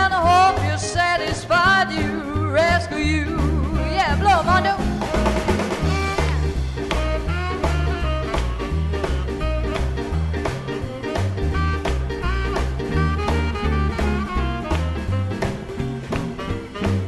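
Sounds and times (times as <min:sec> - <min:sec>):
drums keeping a steady beat: 0:00.0 - 0:17.0
walking upright bass line: 0:00.0 - 0:17.0
tenor saxophone solo: 0:04.2 - 0:17.0.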